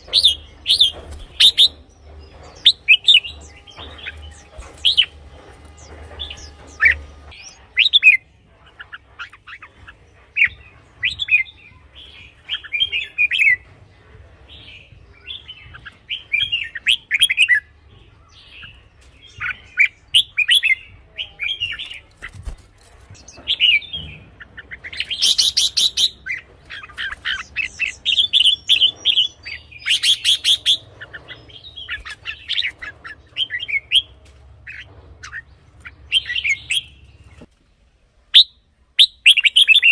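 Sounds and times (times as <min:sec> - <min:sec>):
bird singing bright phrases: 0:00.0 - 0:08.2, 0:23.2 - 0:37.5, 0:38.3 - 0:39.9
harsh rattling bird call: 0:00.0 - 0:08.2.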